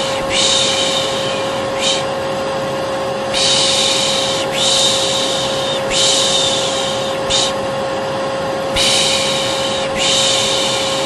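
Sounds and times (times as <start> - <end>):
person shushing: 0.0 - 2.1, 3.3 - 7.6
vacuum cleaner running: 0.0 - 11.0.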